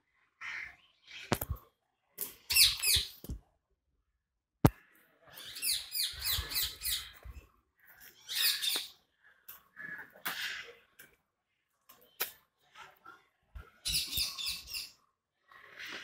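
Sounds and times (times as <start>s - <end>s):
caged birds calling: 2.4s - 3.2s, 5.2s - 11.0s, 13.6s - 16.0s.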